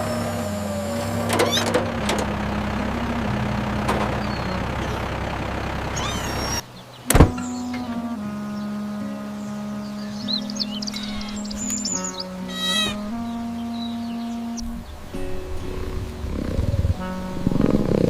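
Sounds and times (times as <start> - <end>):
vehicle engine running: 0.0 - 6.6, 9.4 - 18.0
music: 7.0 - 18.0.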